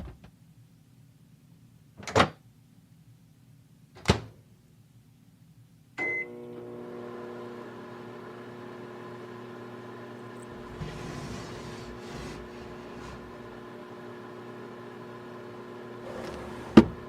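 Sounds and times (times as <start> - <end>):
microwave beep: 6.0 - 6.4
microwave humming: 6.0 - 17.0.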